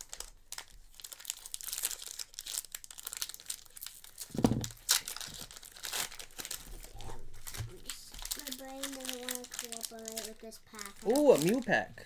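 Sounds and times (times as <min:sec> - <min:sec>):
foil wrapper crinkling: 0:00.0 - 0:12.0
handling knock: 0:04.3 - 0:04.7.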